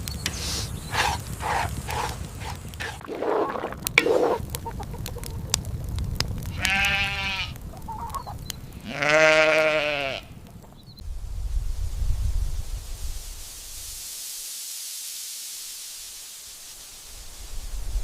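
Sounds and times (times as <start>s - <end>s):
farm animal bleating: 6.5s - 8.2s, 8.8s - 10.4s.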